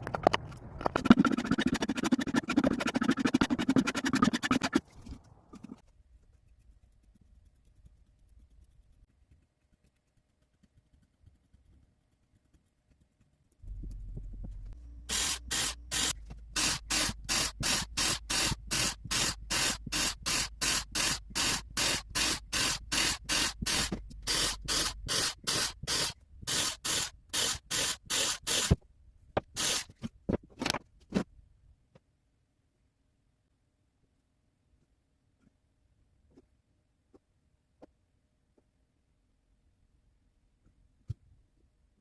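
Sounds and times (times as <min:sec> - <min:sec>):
low steady hum: 0:13.5 - 0:16.7.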